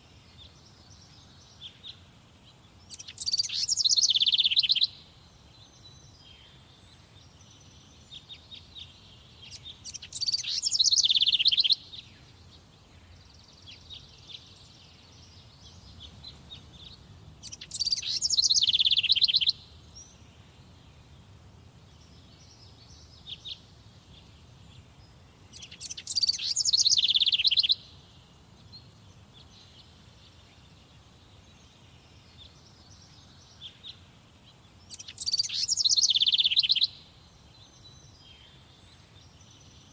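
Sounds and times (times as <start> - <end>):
songbird trilling: 2.9 - 5.0, 9.5 - 11.9, 15.5 - 20.0, 25.5 - 27.9, 34.9 - 37.0.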